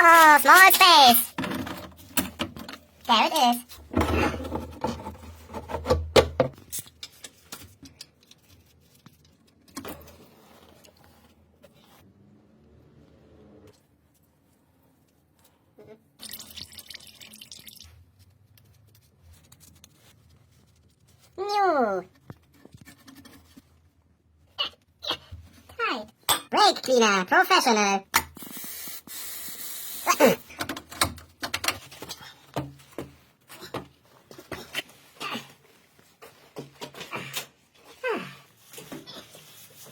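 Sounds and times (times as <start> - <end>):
spray can hissing: 28.4 - 30.1.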